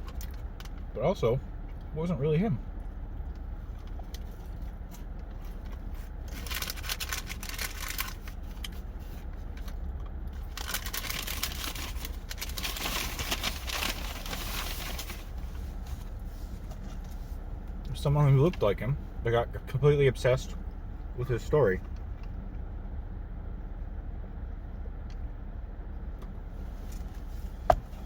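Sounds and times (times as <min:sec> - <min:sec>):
paper packaging crinkling: 0:06.2 - 0:09.2, 0:10.4 - 0:16.0.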